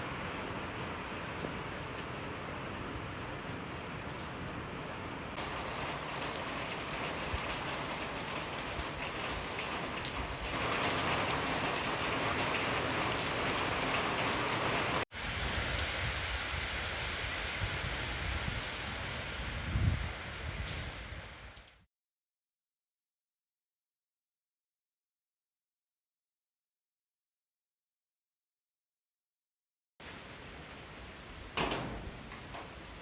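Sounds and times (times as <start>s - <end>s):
steady rain falling: 0.0s - 21.9s, 30.0s - 33.0s.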